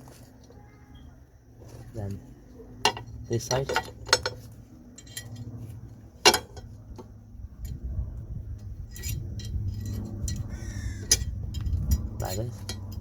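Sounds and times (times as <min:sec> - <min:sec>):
metal brake parts clinking: 0:02.7 - 0:05.6, 0:06.2 - 0:07.8, 0:08.5 - 0:13.0.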